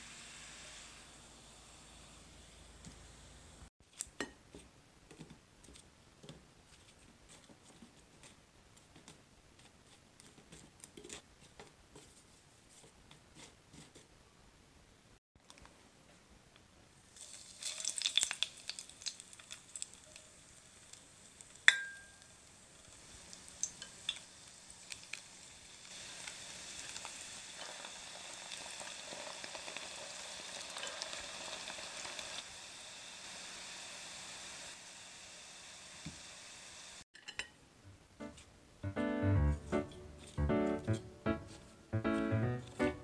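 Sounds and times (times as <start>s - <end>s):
dough sizzling in oil: 0.0s - 3.7s, 17.0s - 37.1s.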